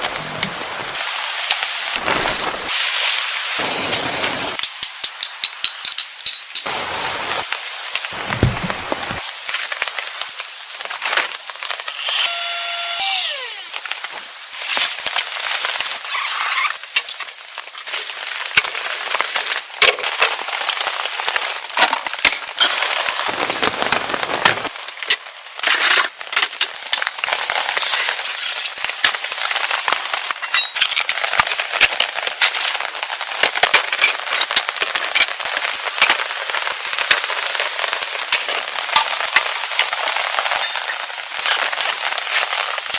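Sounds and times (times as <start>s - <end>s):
rain hiss and tapping: 0.0s - 12.0s, 13.7s - 25.6s, 26.2s - 42.9s.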